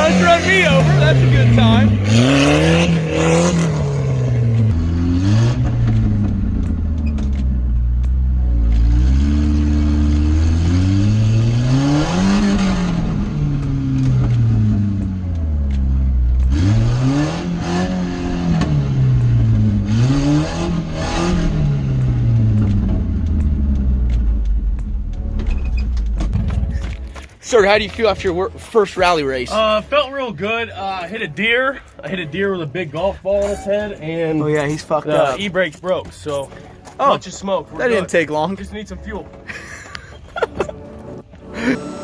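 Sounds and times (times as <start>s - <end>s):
car engine revving: 0.0s - 31.5s
knocks and clatter: 5.5s - 8.9s, 21.8s - 28.7s.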